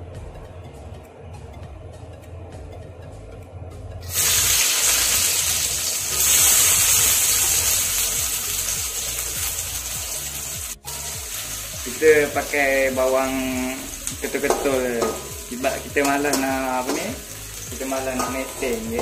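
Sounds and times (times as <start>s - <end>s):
food sizzling in hot oil: 4.0s - 19.0s.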